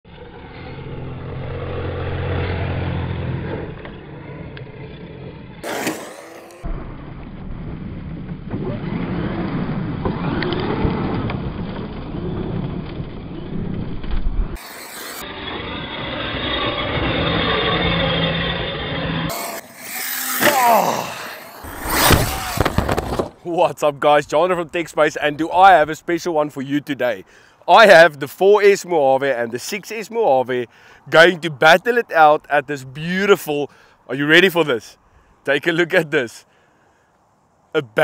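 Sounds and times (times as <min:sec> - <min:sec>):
electric motors revving: 0:00.1 - 0:06.7, 0:08.5 - 0:12.6, 0:14.6 - 0:23.0
tyres on dirt: 0:00.1 - 0:06.7, 0:08.1 - 0:27.1.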